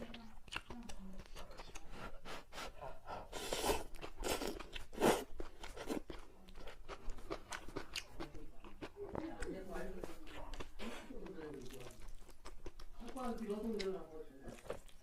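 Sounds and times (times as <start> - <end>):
person chewing crispy food: 0.0 - 15.0.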